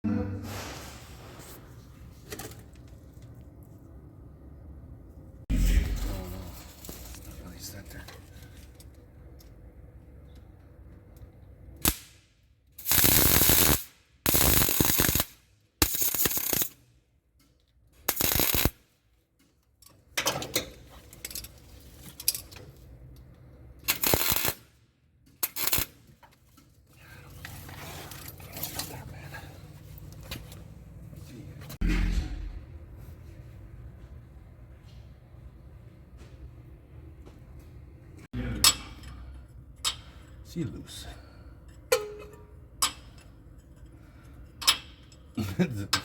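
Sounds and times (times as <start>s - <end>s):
welding arc crackling: 12.8s - 16.7s, 18.1s - 18.8s, 23.9s - 24.6s, 25.4s - 25.9s.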